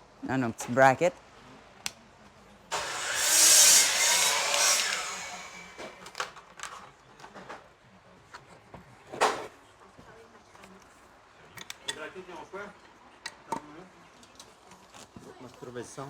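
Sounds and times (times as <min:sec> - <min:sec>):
saw cutting wood: 0:02.7 - 0:06.2.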